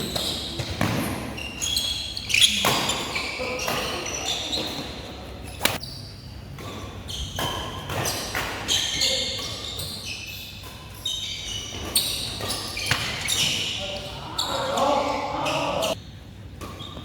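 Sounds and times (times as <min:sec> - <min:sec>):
shoes squeaking on court floor: 0:00.0 - 0:17.0
racket hitting shuttlecock: 0:05.6 - 0:05.8.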